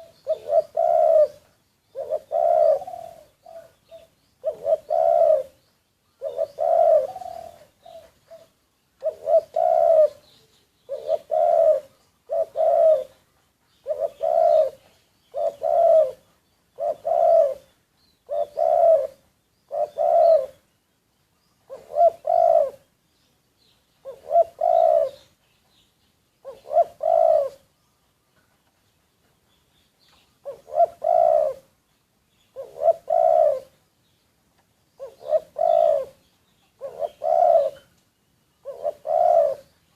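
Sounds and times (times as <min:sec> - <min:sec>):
dove cooing: 0:00.0 - 0:05.6, 0:06.2 - 0:20.6, 0:21.6 - 0:22.9, 0:24.0 - 0:25.3, 0:26.4 - 0:27.7, 0:30.4 - 0:31.7, 0:32.5 - 0:33.8, 0:35.0 - 0:37.9, 0:38.6 - 0:39.9.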